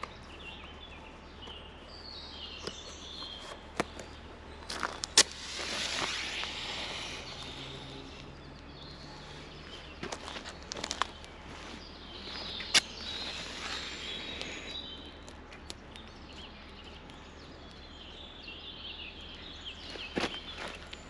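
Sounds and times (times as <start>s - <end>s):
birds chirping: 0.0s - 21.0s
loud crack: 5.0s - 7.9s.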